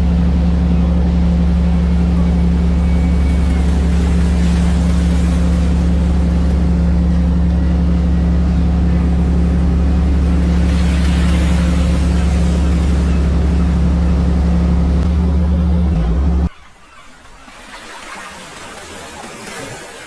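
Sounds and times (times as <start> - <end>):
boat engines droning: 0.0 - 20.0
wind and water rushing: 0.0 - 20.0.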